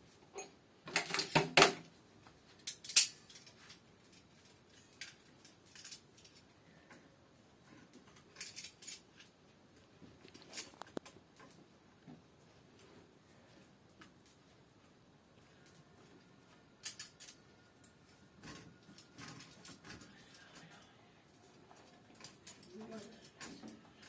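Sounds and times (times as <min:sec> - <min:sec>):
metal tools clinking: 0:00.4 - 0:01.4, 0:02.6 - 0:06.4, 0:08.0 - 0:09.3, 0:16.8 - 0:20.6, 0:21.7 - 0:24.0.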